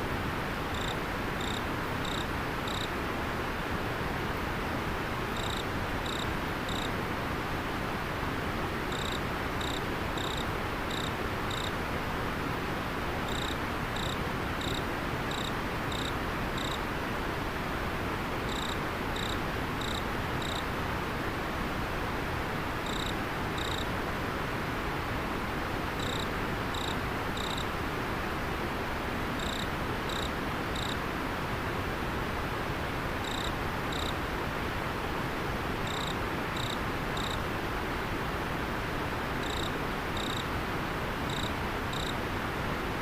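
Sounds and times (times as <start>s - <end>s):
cricket chirping: 0.7s - 2.9s, 5.4s - 6.9s, 8.9s - 11.7s, 13.3s - 16.8s, 18.5s - 20.7s, 22.8s - 23.8s, 26.0s - 27.7s, 29.4s - 31.0s, 33.2s - 34.2s, 35.8s - 37.4s, 39.4s - 40.5s, 41.3s - 42.2s.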